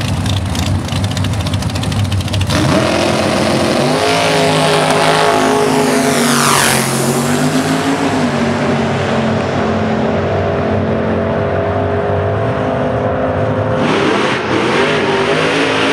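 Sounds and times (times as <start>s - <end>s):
car engine running: 0.0s - 15.9s
high whine falling in pitch: 3.3s - 15.9s.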